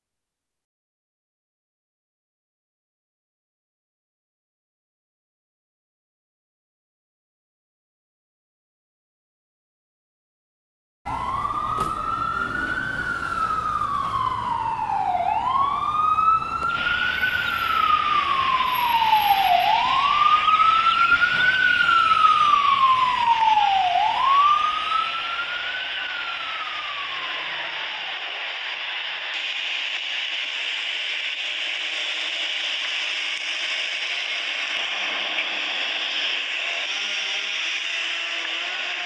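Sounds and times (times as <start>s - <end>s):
siren wailing: 11.1s - 39.0s
steady hiss: 27.5s - 39.0s.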